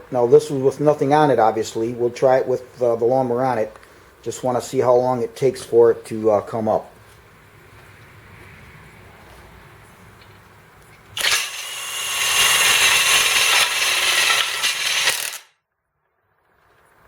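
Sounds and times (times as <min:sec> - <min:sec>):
impact driver hammering: 0:11.2 - 0:15.5.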